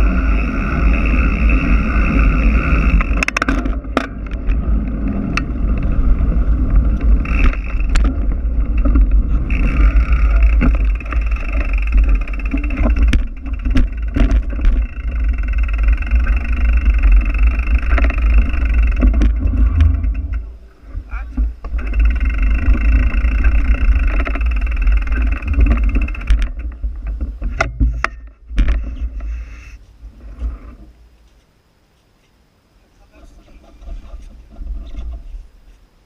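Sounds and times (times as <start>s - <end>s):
wind rumbling on microphone: 0.0s - 31.2s, 33.1s - 35.8s
sharp clicks and knocks: 3.0s - 4.6s, 6.9s - 29.3s.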